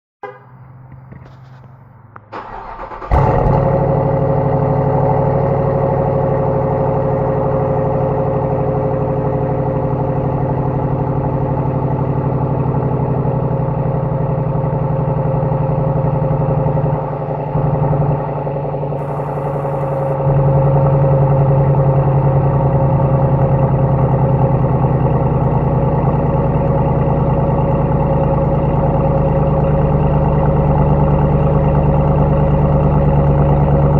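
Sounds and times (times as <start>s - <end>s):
engine idling: 0.2s - 33.9s
starter motor cranking: 2.3s - 3.6s, 19.0s - 20.2s.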